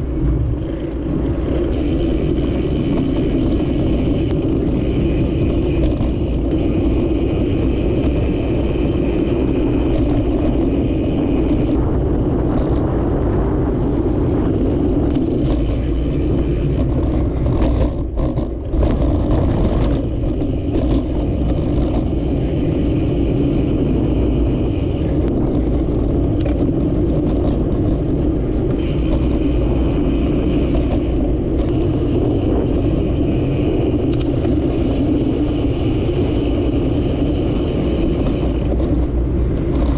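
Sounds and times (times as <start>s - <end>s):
bicycle rolling noise: 0.0s - 39.9s
wind rumble: 0.0s - 39.9s.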